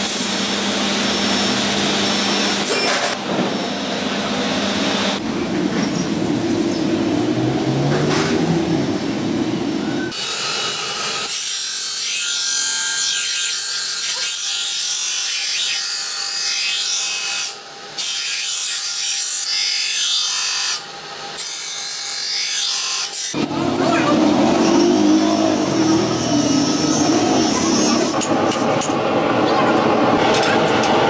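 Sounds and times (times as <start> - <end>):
low rumbling machine: 3.4 - 10.1, 23.4 - 31.0
power tool grinding steel: 10.0 - 28.2.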